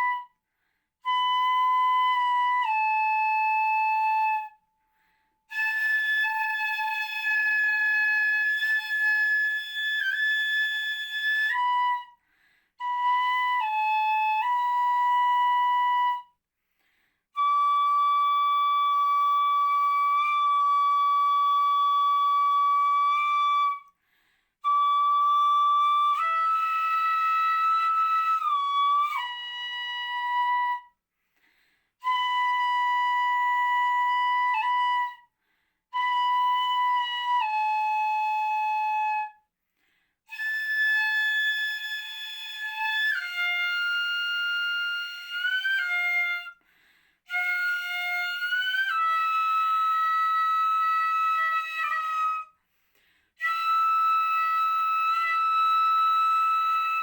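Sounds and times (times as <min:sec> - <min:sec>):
bamboo flute playing held notes: 0:00.0 - 0:00.4, 0:01.0 - 0:04.7, 0:05.4 - 0:12.2, 0:12.8 - 0:16.4, 0:17.3 - 0:23.9, 0:24.6 - 0:31.0, 0:32.0 - 0:35.3, 0:35.9 - 0:39.5, 0:40.3 - 0:46.6, 0:47.3 - 0:52.6, 0:53.4 - 0:57.0.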